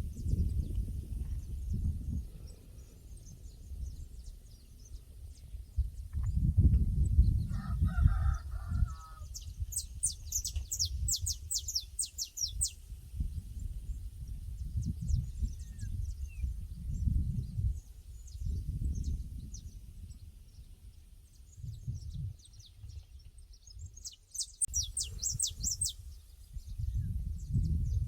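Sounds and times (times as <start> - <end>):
wind rumbling on microphone: 0.0 - 28.0
distant rooster crowing: 7.5 - 9.4
small bird chirping: 9.3 - 12.8, 21.6 - 27.8.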